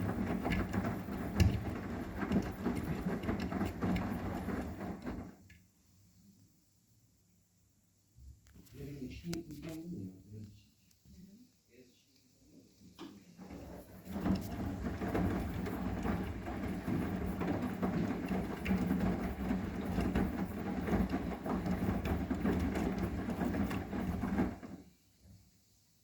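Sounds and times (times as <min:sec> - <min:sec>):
laundry and water sloshing: 0:00.0 - 0:05.4, 0:13.2 - 0:24.9
washing machine drum turning: 0:00.0 - 0:05.5, 0:13.4 - 0:24.9.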